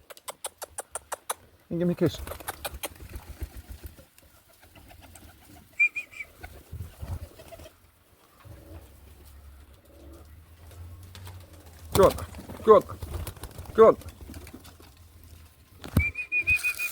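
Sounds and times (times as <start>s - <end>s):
pigeons cooing: 4.6s - 14.7s.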